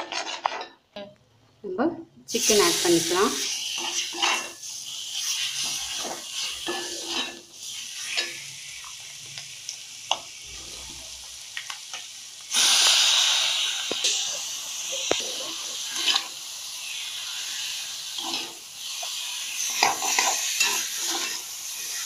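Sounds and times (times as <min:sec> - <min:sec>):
metal ladle scraping and tapping pan: 0:00.0 - 0:00.8
chicken sizzling in a frying pan: 0:02.3 - 0:22.0.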